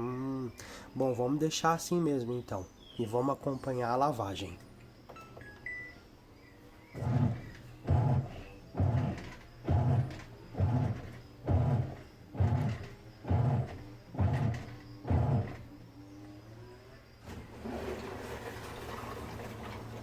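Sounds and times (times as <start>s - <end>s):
washing machine agitator motor: 6.6s - 20.0s
water running into tub: 17.3s - 20.0s.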